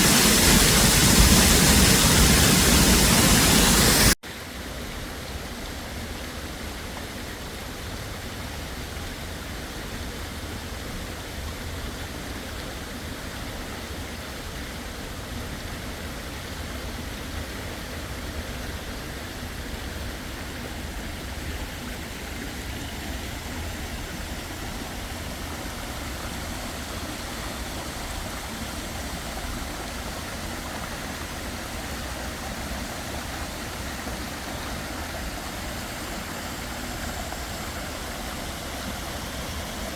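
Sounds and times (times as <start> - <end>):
waterfall rushing: 0.0 - 4.2, 21.4 - 39.9.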